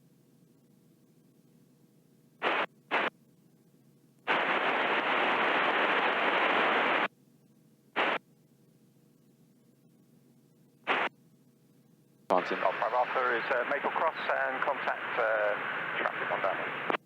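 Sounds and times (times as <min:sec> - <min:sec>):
radio static bursts: 0:02.4 - 0:03.1, 0:04.3 - 0:07.1, 0:08.0 - 0:08.2, 0:10.9 - 0:11.1, 0:12.3 - 0:17.0.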